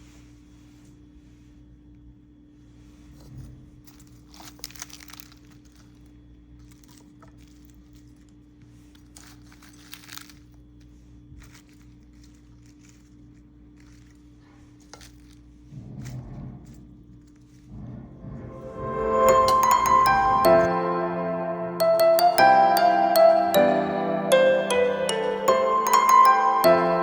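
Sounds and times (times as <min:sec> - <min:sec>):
crinkling and rustling handling: 0:03.1 - 0:17.7.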